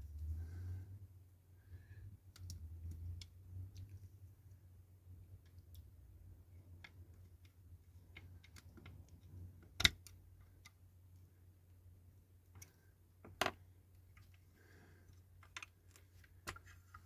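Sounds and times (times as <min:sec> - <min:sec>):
model car parts clicking: 0:02.2 - 0:04.1, 0:05.2 - 0:10.8, 0:15.1 - 0:17.0.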